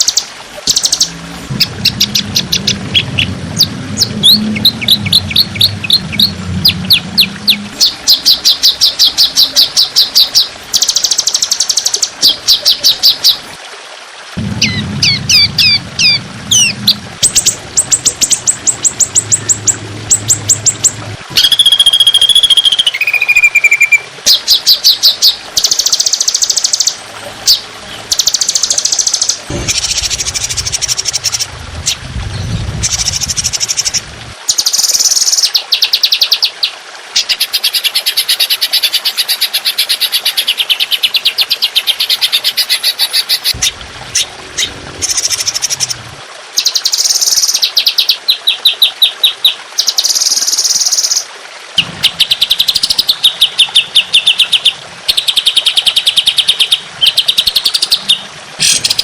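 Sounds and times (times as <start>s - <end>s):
songbird trills: 14.6s - 31.5s.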